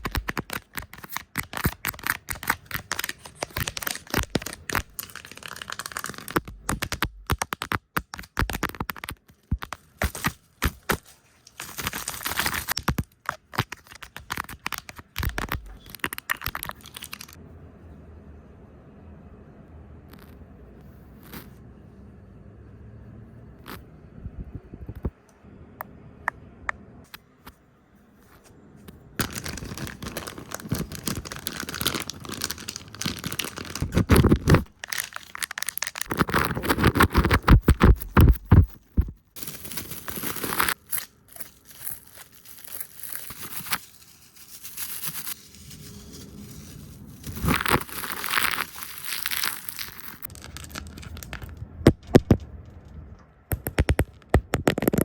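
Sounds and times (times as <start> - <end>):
crackly friction noise: 29.2 - 55.0.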